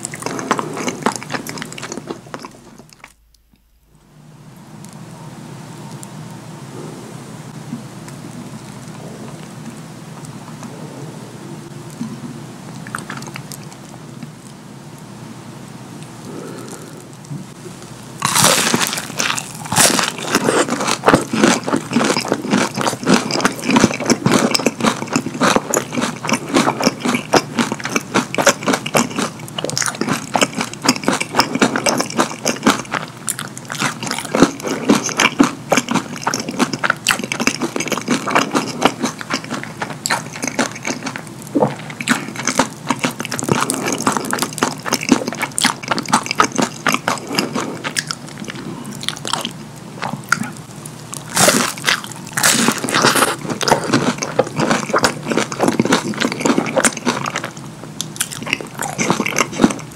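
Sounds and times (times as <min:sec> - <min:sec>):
crunchy chewing: 0:00.0 - 0:03.4, 0:11.9 - 0:14.6, 0:18.2 - 0:59.9
biting into crispy food: 0:18.2 - 0:59.9.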